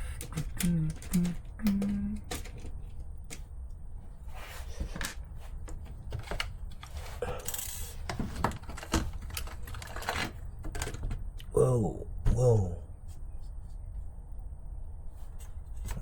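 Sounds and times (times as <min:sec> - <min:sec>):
small parts clicking and clattering: 0:00.0 - 0:03.5, 0:04.8 - 0:11.2.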